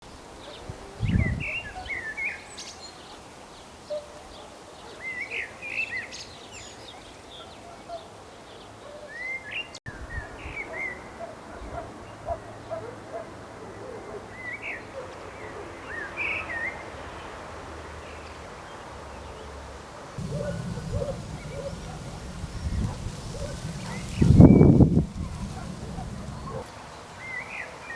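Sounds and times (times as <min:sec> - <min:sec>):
loud low rumble: 0:20.2 - 0:26.6
steady background hiss: 0:20.2 - 0:26.7
songbirds chirping: 0:20.2 - 0:27.6.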